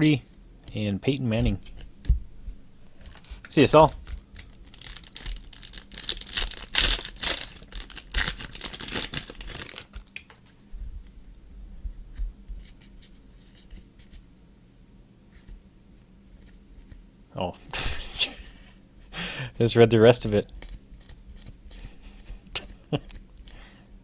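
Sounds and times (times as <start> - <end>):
packaging tearing and crinkling: 3.1 - 10.3.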